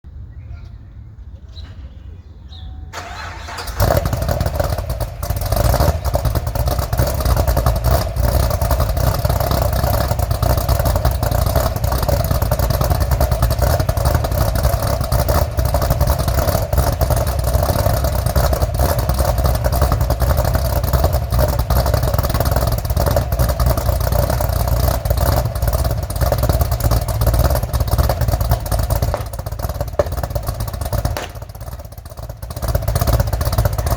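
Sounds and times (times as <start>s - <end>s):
car engine cranking: 2.9s - 33.9s
car engine fast idle: 3.0s - 33.9s.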